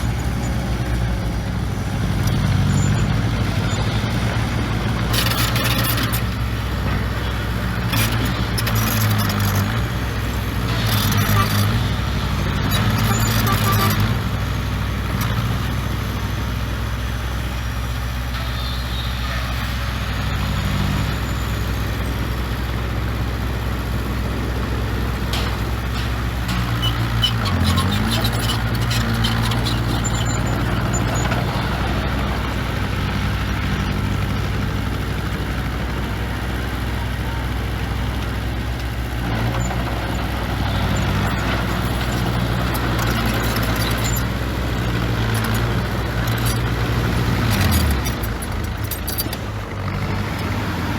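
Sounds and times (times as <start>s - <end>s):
heavy diesel engine running: 0.0s - 50.9s
clanks and rattles: 24.6s - 34.3s, 38.3s - 50.6s.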